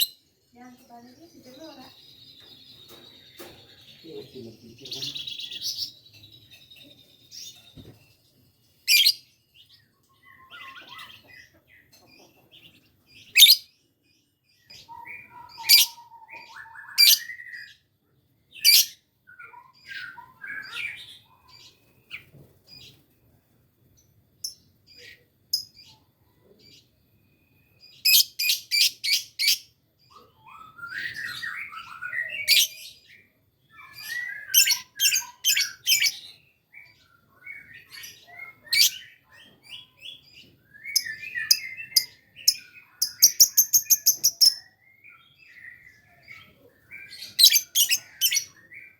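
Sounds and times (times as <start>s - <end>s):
lovebird shrill chirps: 8.9s - 9.2s, 13.3s - 13.6s, 17.0s - 17.3s, 33.8s - 36.2s, 38.7s - 39.0s, 40.9s - 44.7s, 47.1s - 48.6s.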